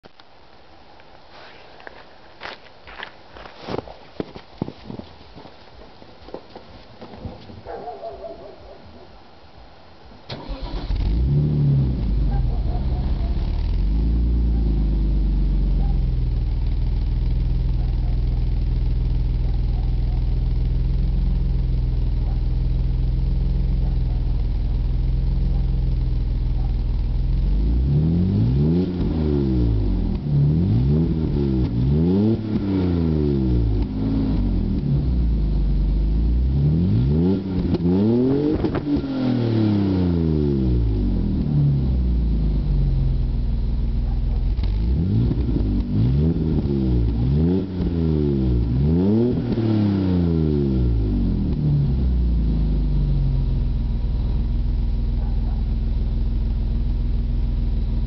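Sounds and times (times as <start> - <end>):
car engine starting: 10.2 - 58.0
car engine idling: 10.3 - 39.5, 40.6 - 49.7, 50.4 - 58.0
car engine revving: 10.3 - 55.0.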